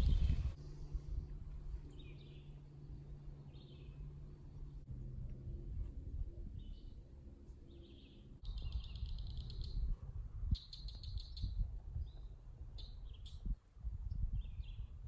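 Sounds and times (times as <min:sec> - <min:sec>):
low background rumble: 0:00.0 - 0:15.0
songbirds chirping and trilling: 0:01.8 - 0:04.9, 0:06.5 - 0:15.0.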